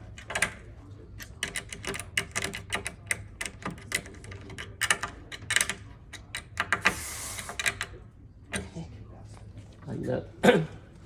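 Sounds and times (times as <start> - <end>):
metal hardware clicks and taps: 0.0 - 7.0.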